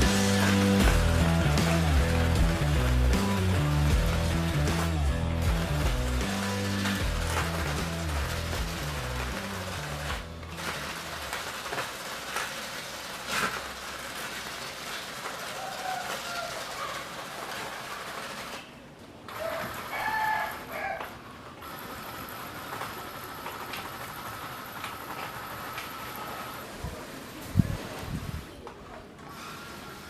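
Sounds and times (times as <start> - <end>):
electric motor and gears whirring: 0.0 - 18.7.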